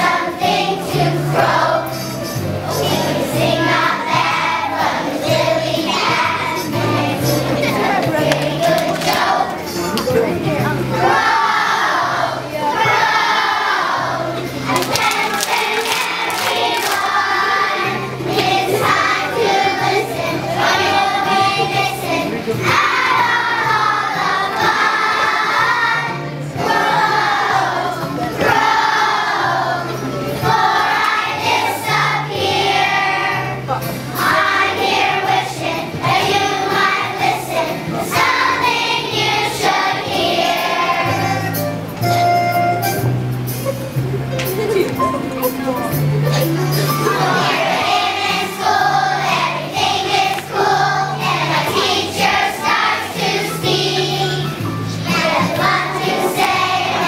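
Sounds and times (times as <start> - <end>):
children singing together: 0.0 - 10.0, 10.8 - 41.6, 46.5 - 57.0
recorded accompaniment with bass: 35.6 - 48.3.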